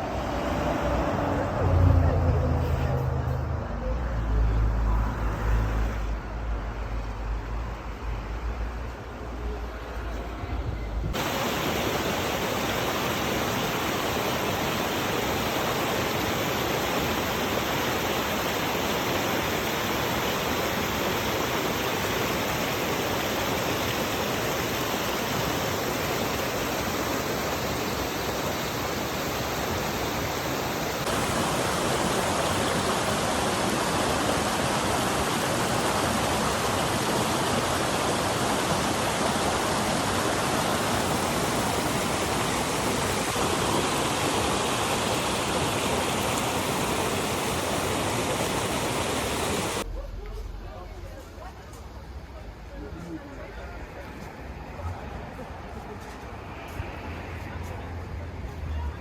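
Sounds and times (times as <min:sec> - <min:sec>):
waterfall rushing: 0:11.2 - 0:49.9.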